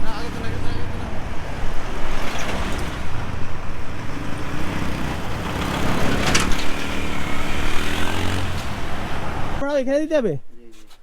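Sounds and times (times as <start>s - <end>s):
road noise: 0.0s - 11.0s
small engine running: 4.1s - 9.6s.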